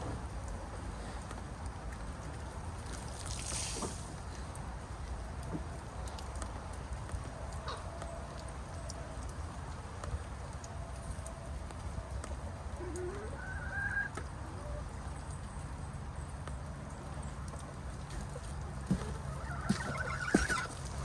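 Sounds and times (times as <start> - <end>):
low background noise: 0.0 - 21.0
hens clucking: 7.6 - 8.0, 12.2 - 15.0, 18.0 - 21.0
hen short rising calls: 18.9 - 21.0.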